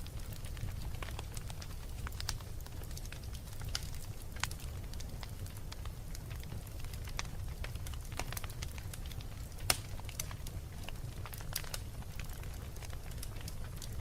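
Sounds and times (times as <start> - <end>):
flames rumbling: 0.0 - 14.0
wood fire crackling: 0.0 - 14.0.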